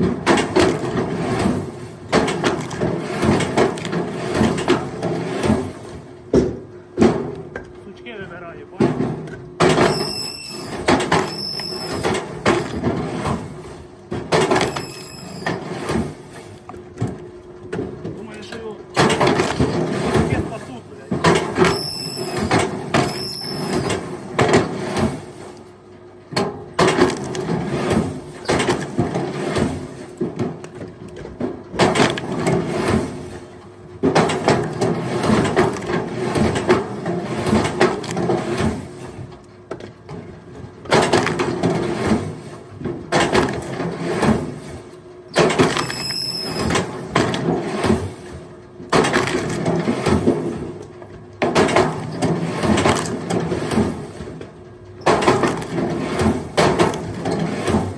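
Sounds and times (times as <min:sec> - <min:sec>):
firewood logs clattering: 0:48.9 - 0:57.9.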